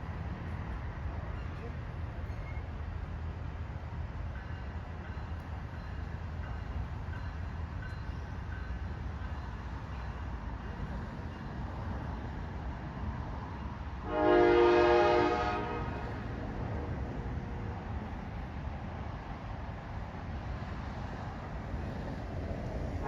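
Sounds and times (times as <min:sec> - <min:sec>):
train rumbling: 0:00.0 - 0:23.0
locomotive air horn: 0:14.0 - 0:16.3.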